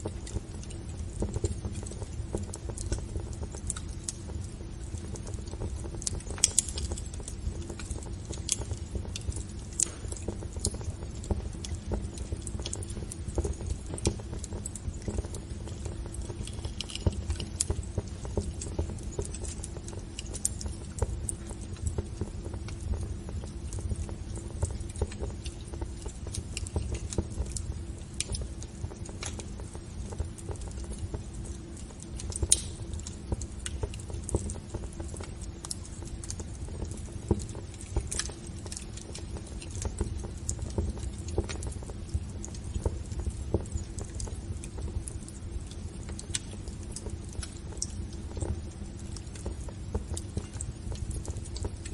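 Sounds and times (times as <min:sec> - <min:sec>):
flames rumbling: 0:00.0 - 0:51.9
wood fire crackling: 0:00.0 - 0:51.9.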